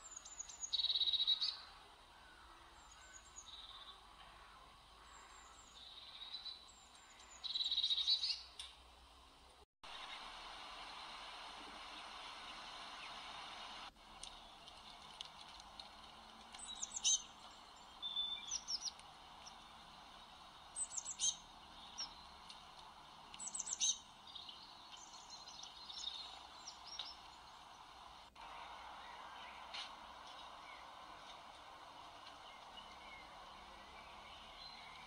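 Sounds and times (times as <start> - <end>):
small birds singing: 0.0 - 8.7, 10.0 - 35.0
steady background hum: 8.6 - 35.0.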